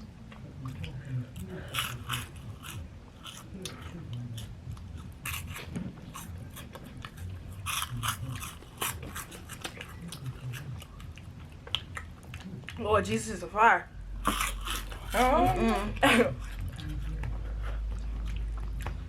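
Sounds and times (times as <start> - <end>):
crunching and chewing snacks: 0.4 - 12.8, 14.2 - 19.0.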